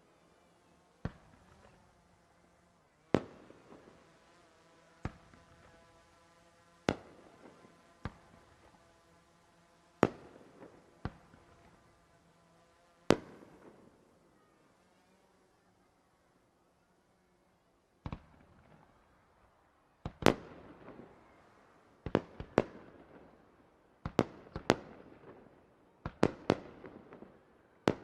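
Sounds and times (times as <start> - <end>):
fireworks bursting: 3.1 - 4.1, 10.0 - 12.1, 13.0 - 14.2, 20.0 - 21.4, 22.0 - 23.4, 24.0 - 28.0.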